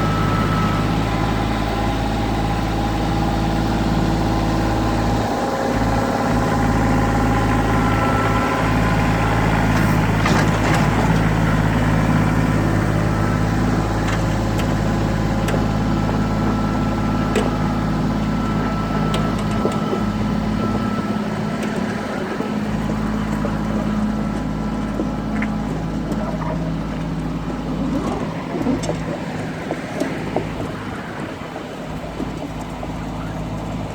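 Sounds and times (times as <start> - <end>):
diesel tractor engine running: 0.0 - 33.9.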